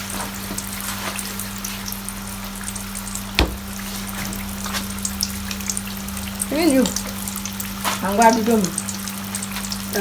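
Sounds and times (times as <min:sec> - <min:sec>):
food deep-frying in oil: 0:00.0 - 0:10.0
sharp knock: 0:03.4 - 0:03.8.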